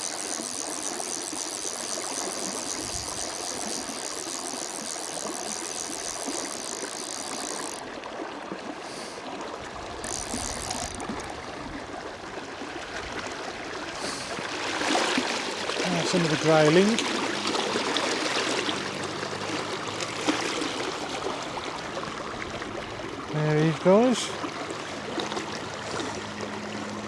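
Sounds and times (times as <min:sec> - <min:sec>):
fishing reel ratchet clicking: 0:00.0 - 0:07.9, 0:10.0 - 0:11.4.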